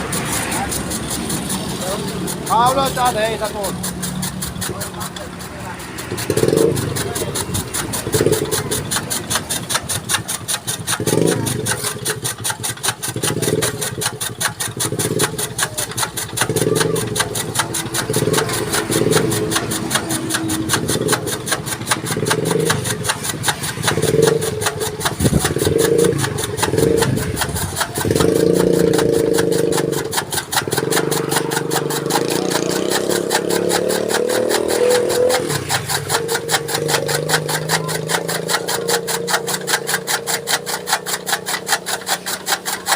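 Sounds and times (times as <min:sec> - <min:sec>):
chaff cutter chopping stalks: 0:00.0 - 0:42.9.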